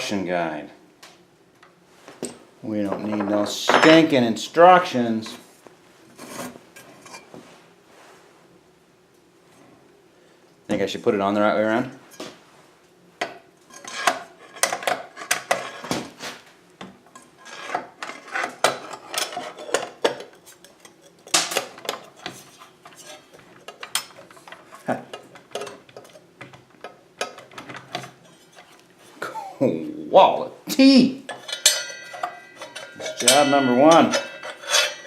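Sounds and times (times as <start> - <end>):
light metal clinks and clatter: 31.3 - 35.0.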